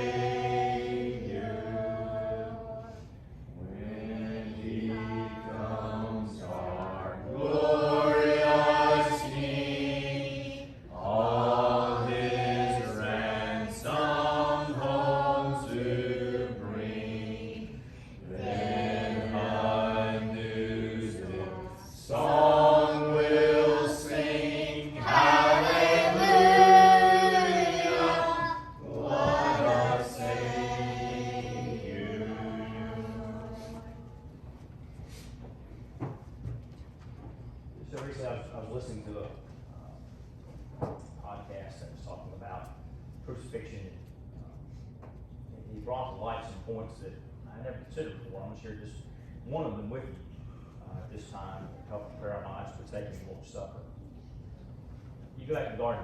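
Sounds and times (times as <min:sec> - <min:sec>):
congregation singing a hymn: 0:00.0 - 0:35.2.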